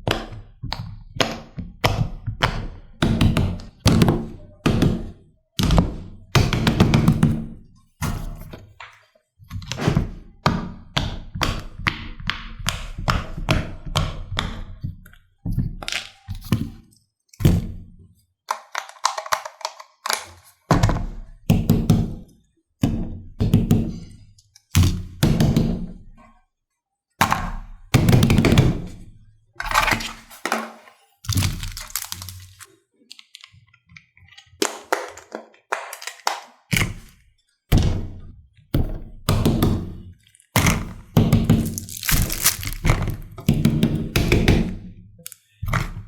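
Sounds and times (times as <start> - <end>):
fidget toys popping and tapping: 40.4 - 46.0.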